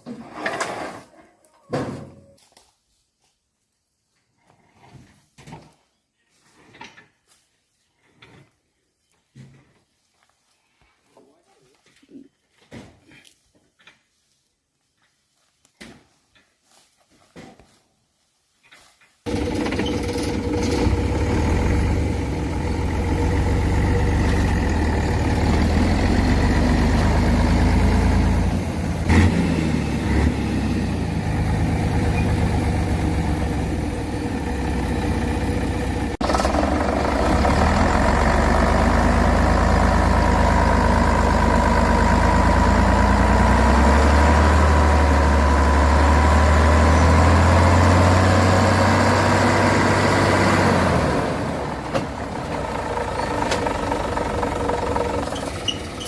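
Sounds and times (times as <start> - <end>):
truck engine running: 19.3 - 56.0.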